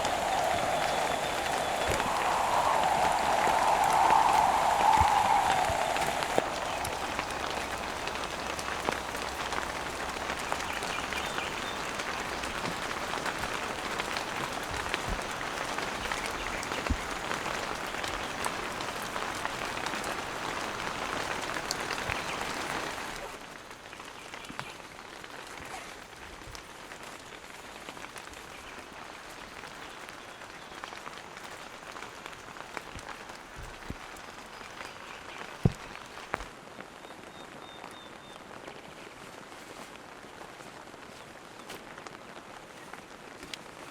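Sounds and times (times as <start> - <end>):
heavy rain falling: 0.0 - 24.3.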